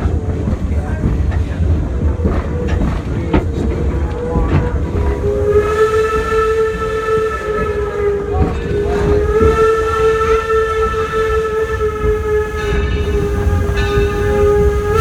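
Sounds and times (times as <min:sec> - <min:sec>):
train rumble: 0:00.0 - 0:15.0
steam locomotive whistle: 0:04.9 - 0:15.0.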